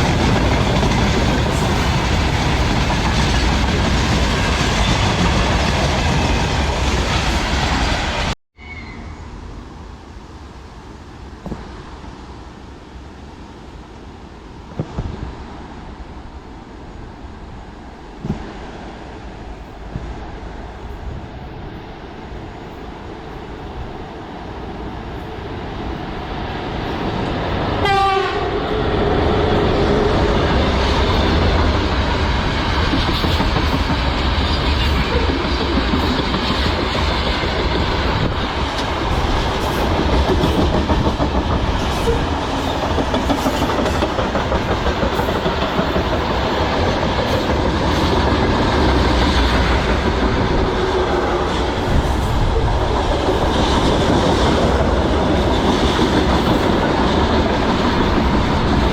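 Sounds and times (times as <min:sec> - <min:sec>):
train clattering over rail joints: 0:00.0 - 0:08.2, 0:27.1 - 0:58.9
electric locomotive passing: 0:00.0 - 0:58.9
locomotive horn: 0:27.8 - 0:28.9.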